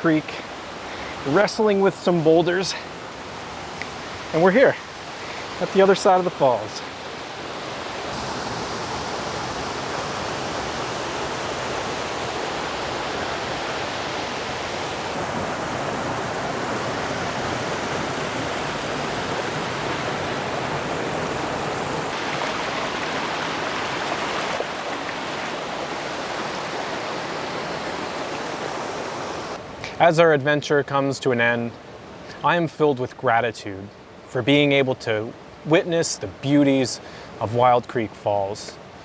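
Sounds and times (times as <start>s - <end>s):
waterfall rushing: 0.0s - 3.2s, 3.8s - 29.6s.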